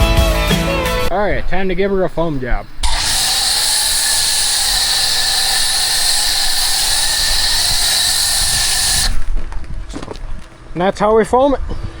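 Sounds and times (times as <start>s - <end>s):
foam sprayer hissing: 1.6s - 9.6s.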